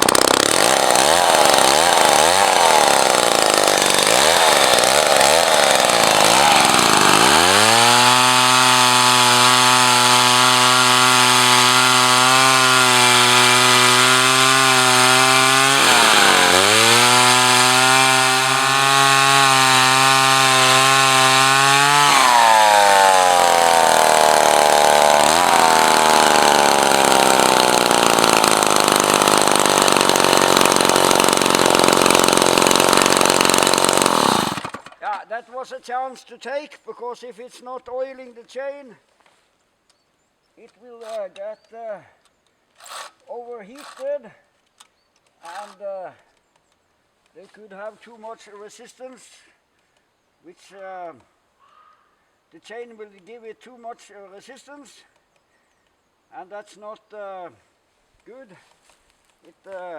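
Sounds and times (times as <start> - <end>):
two-stroke chainsaw revving: 0.0 - 35.0.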